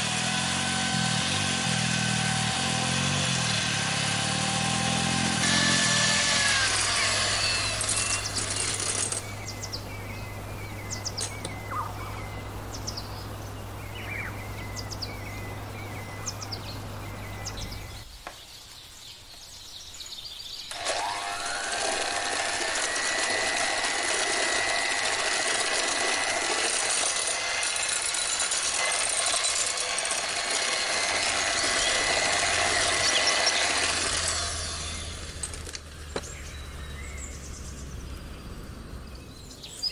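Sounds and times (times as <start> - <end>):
electric hand mixer whining: 3.4 - 9.2, 20.7 - 35.8.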